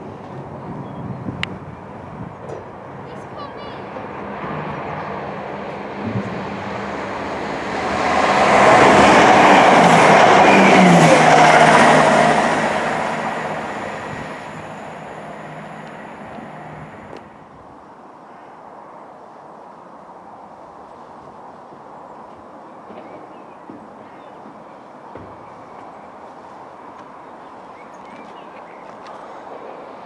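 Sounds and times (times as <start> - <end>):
diesel train passing: 0.0 - 17.8.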